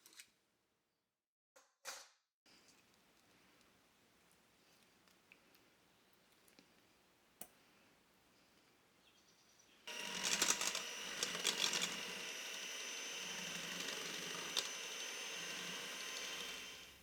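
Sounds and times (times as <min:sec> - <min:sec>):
small electric motor whining: 0:09.9 - 0:17.0.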